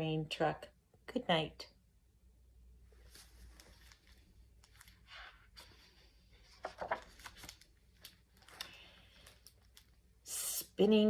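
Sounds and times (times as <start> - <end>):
book page turning: 3.0 - 10.1
paper rustling: 3.0 - 10.1.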